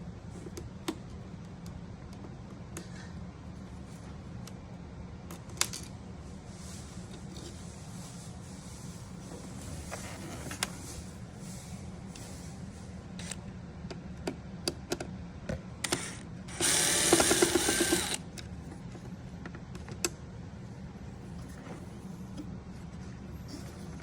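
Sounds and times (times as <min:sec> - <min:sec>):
power screwdriver spinning: 0:15.9 - 0:18.2.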